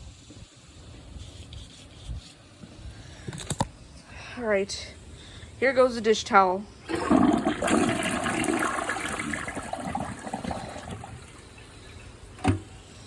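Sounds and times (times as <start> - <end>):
toilet flushing: 6.8 - 13.0.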